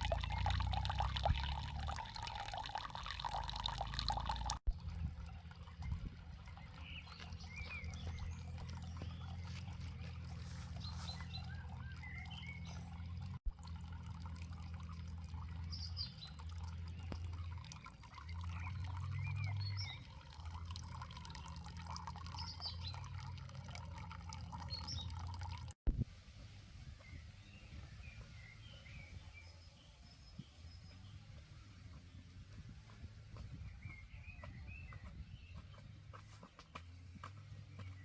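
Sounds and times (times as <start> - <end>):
small birds chirping: 0.0 - 13.4, 15.0 - 25.8, 26.8 - 38.0
water trickling and dripping: 0.0 - 25.8.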